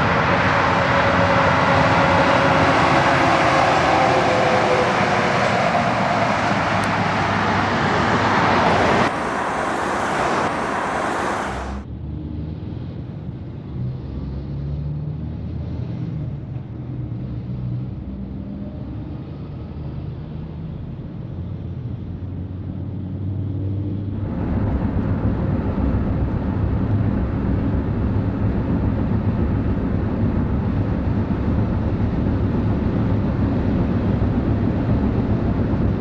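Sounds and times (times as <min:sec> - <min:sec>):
trucks passing on highway: 0:00.0 - 0:11.8, 0:21.3 - 0:36.0
low engine sound: 0:00.0 - 0:11.9, 0:22.7 - 0:36.0.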